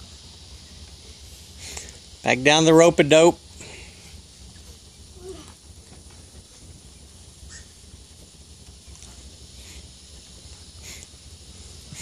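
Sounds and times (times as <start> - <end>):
harsh high-pitched bird calls: 7.5 - 7.8.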